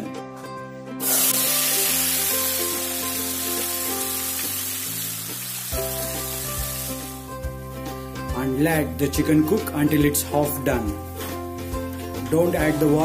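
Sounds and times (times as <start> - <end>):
chicken sizzling in hot oil: 1.0 - 7.6.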